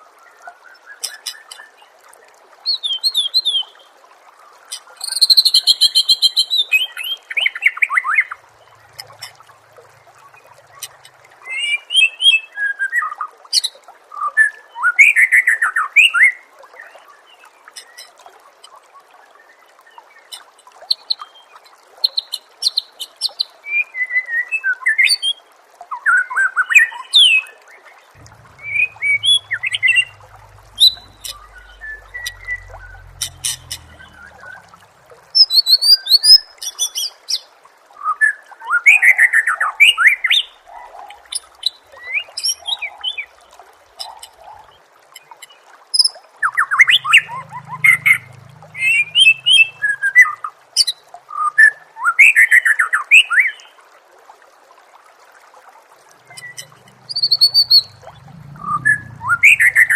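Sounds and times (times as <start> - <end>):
bird singing whistles and trills: 56.3 - 59.9.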